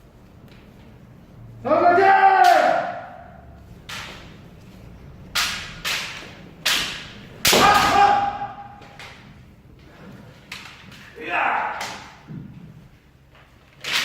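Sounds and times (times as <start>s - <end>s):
person shouting: 1.7s - 3.2s, 7.5s - 8.8s, 11.2s - 12.2s
bamboo sword strikes: 5.4s - 9.1s.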